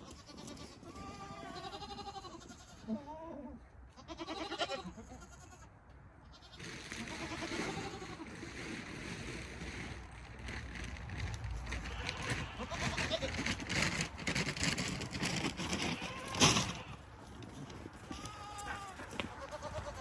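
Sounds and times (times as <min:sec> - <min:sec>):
goats bleating: 0:00.0 - 0:05.7, 0:06.3 - 0:08.4, 0:11.7 - 0:13.6, 0:15.6 - 0:17.2, 0:18.0 - 0:20.0
small knocks and rustles: 0:06.8 - 0:20.0.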